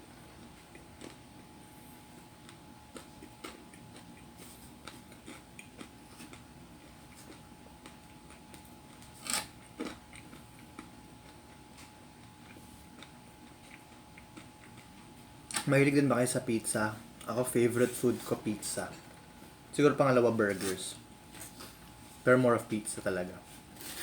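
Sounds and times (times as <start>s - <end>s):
faint steady hum: 0.0s - 24.0s
chewing pizza: 0.2s - 15.6s.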